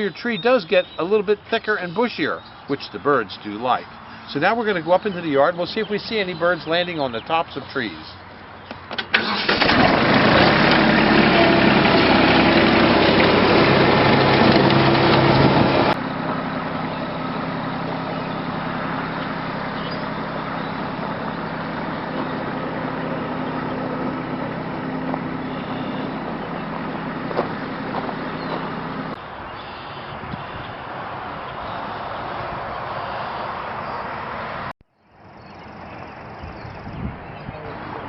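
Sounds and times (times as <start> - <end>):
vehicle engine running: 9.3 - 29.2.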